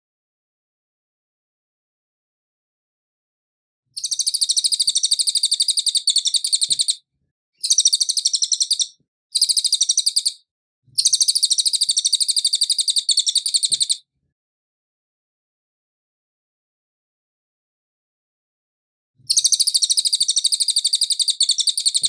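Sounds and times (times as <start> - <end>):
bird trilling song: 4.0 - 7.0, 7.6 - 14.1, 19.3 - 22.0.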